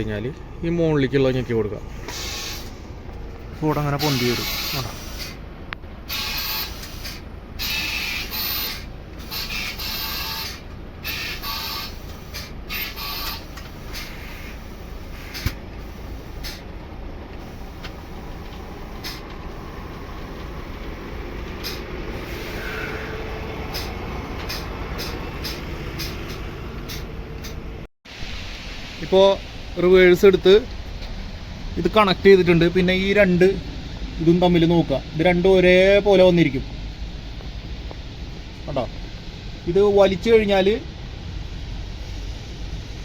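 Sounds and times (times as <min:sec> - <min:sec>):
air suspension hissing: 0:01.8 - 0:03.1, 0:03.7 - 0:05.5, 0:06.1 - 0:16.8, 0:17.4 - 0:27.8
truck engine running: 0:11.9 - 0:27.9.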